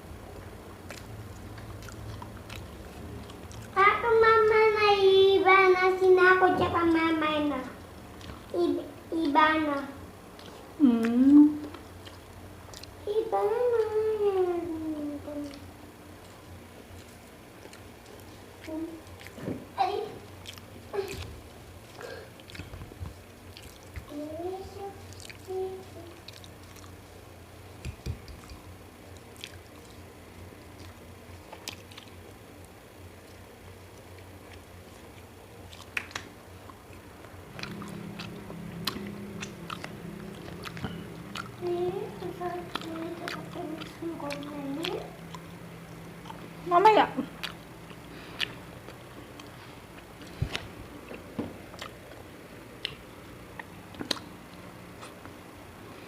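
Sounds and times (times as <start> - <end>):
steady low hum: 0.0 - 56.0
person chewing food: 0.3 - 3.8, 7.8 - 8.6, 9.2 - 13.1, 15.3 - 19.5, 20.2 - 24.3, 25.0 - 46.6, 47.2 - 56.0
mouth clicks: 52.8 - 54.4.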